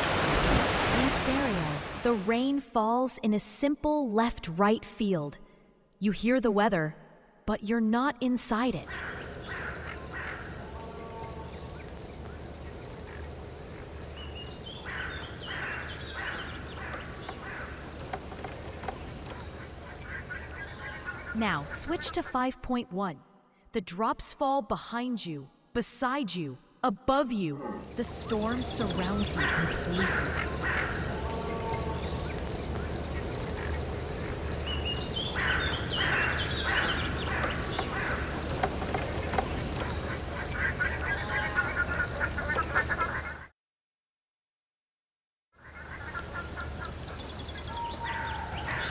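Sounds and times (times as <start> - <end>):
loud animal calls: 8.8 - 22.0, 27.6 - 43.5, 45.6 - 48.9
cricket chirping: 8.9 - 22.0, 27.6 - 43.3.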